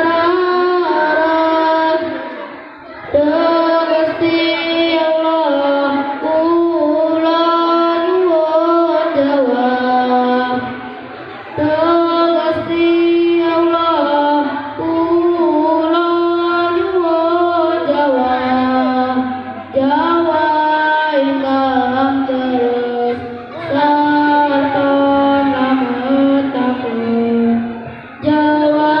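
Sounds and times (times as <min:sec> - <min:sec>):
high voice chanting prayer: 0:00.0 - 0:29.0.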